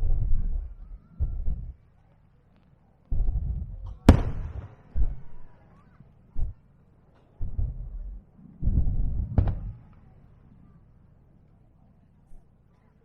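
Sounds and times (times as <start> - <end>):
fireworks sharp cracks: 4.1 - 5.2
fireworks deep booms: 4.1 - 5.4.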